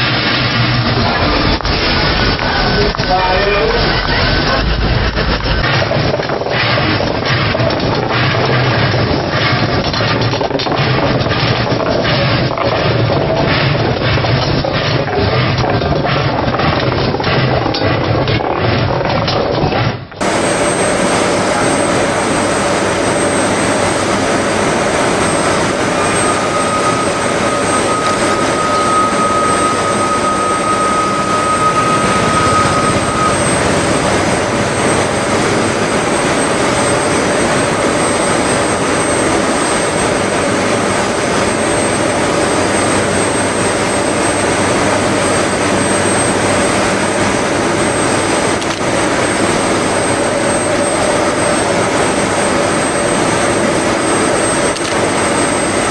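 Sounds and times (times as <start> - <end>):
steam locomotive rushing steam: 0.0 - 18.2, 20.2 - 55.9
thin high steady tone: 20.2 - 35.5.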